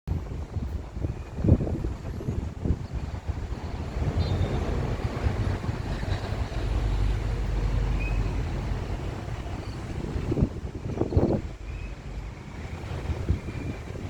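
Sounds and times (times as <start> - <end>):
jet airliner rumble: 0.1 - 14.0
wind buffeting microphone: 0.1 - 14.0.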